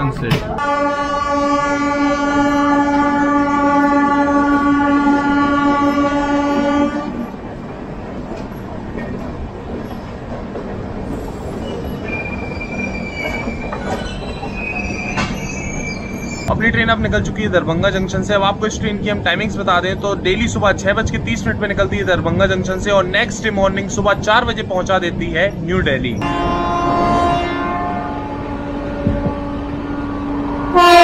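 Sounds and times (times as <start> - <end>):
train horn blast: 0.6 - 7.3, 26.2 - 31.0
high wheel squeal: 11.2 - 16.5.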